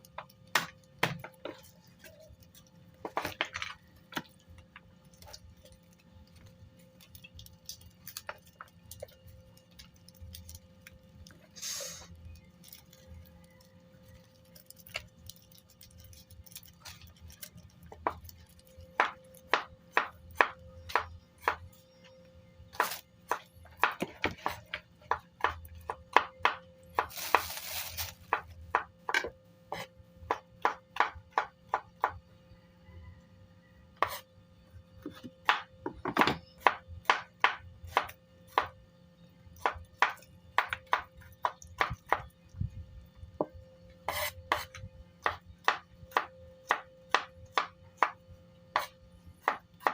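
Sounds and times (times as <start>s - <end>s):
short hissing noise: 11.6s - 12.2s
knife chopping on cutting board: 48.8s - 49.9s.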